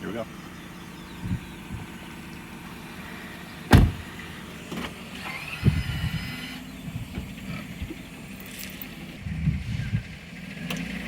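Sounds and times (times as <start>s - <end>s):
car engine rumble: 0.0s - 11.0s
loud sharp impact: 3.7s - 4.1s.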